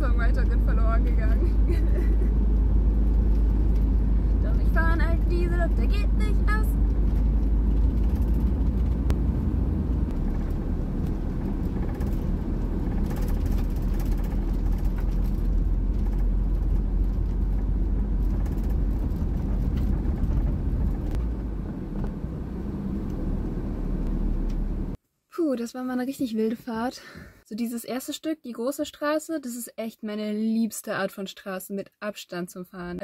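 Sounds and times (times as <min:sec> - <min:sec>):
diesel van engine and road rumble: 0:00.0 - 0:25.0.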